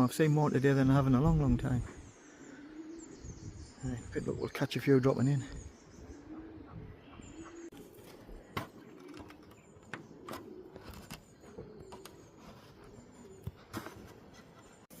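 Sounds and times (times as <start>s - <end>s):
pigeons cooing: 0.7s - 14.9s.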